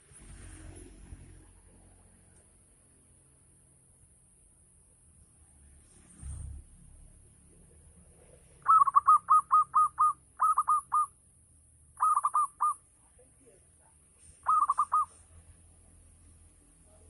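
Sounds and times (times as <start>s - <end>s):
dove cooing: 8.6s - 11.1s, 12.0s - 12.8s, 14.4s - 15.2s.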